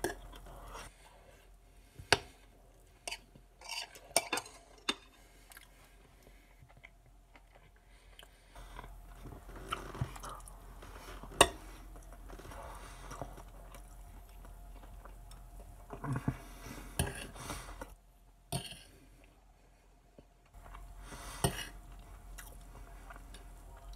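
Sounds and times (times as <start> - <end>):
chewing with wet mouth sounds: 5.4 - 10.7, 21.8 - 23.9.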